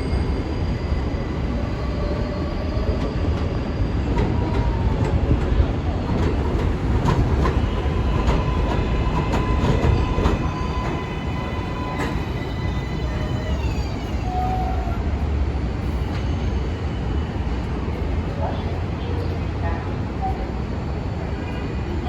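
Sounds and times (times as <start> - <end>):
train wheels rumbling on rail: 0.0 - 22.0
train motor whine: 6.5 - 15.0.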